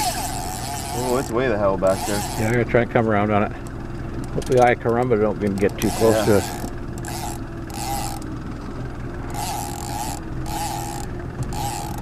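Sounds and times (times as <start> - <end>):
short whirring bursts: 0.0 - 1.3, 1.9 - 2.6, 5.8 - 8.3, 9.2 - 12.0
boat motor running: 0.0 - 12.0.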